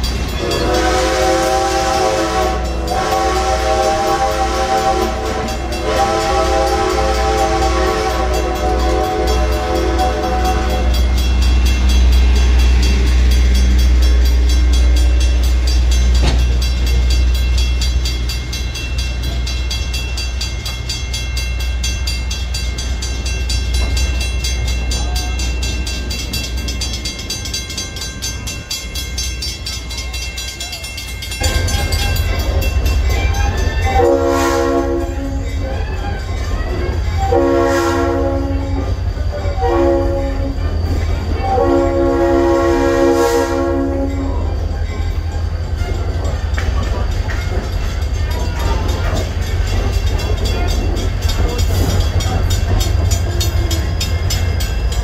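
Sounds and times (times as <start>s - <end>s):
train rumbling: 0.0s - 55.0s
locomotive whistle: 0.4s - 11.8s, 30.0s - 46.1s.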